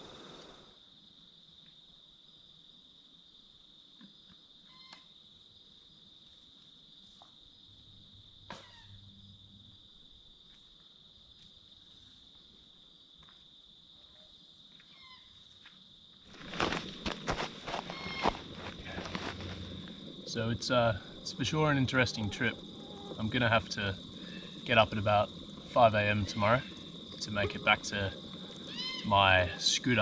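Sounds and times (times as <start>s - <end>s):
crickets chirping: 0.0s - 30.0s.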